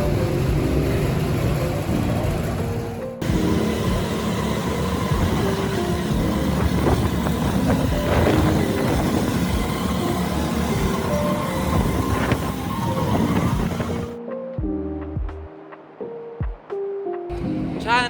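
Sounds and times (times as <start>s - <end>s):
vehicle engine noise: 0.0s - 14.2s.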